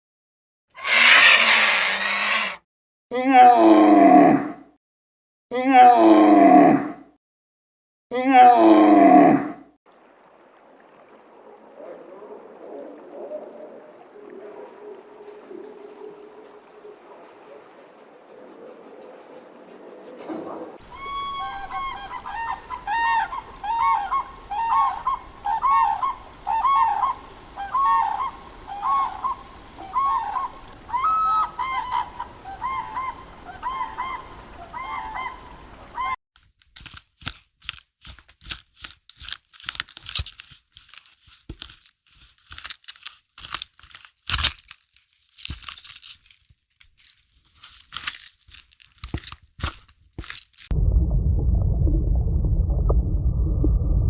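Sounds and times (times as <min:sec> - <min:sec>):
bird honking calls: 0:20.8 - 0:36.2.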